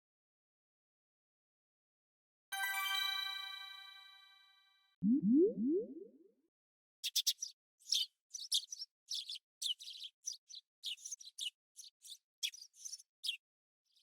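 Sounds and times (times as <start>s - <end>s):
sparrow chirping: 7.0s - 14.0s.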